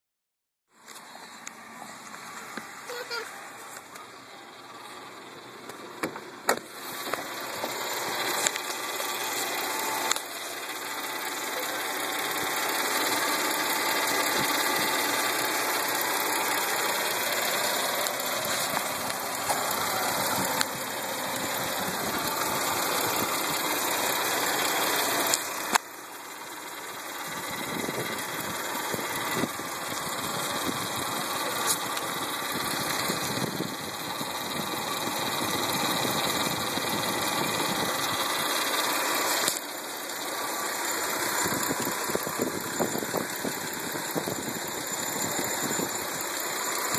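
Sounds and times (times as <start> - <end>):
car engine idling: 0.7 - 46.9
hissy engine noise: 0.9 - 46.9
click: 39.4 - 39.7.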